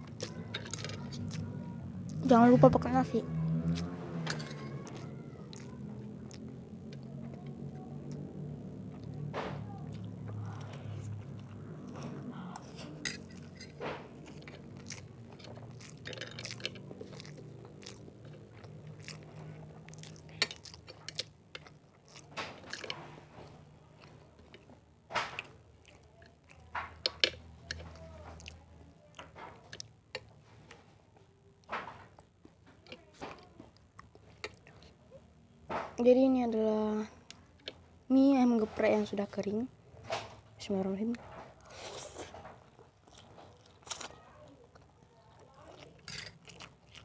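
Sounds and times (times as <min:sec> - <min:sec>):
chewing and mouth sounds: 0:03.5 - 0:09.2, 0:09.8 - 0:35.4, 0:41.6 - 0:47.0.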